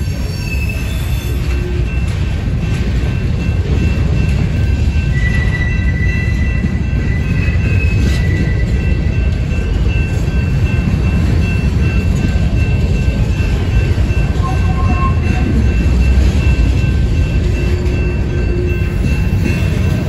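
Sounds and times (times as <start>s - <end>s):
high wheel squeal: 0.0s - 2.0s, 5.1s - 8.9s
steel wheels rumbling on rails: 0.0s - 20.0s.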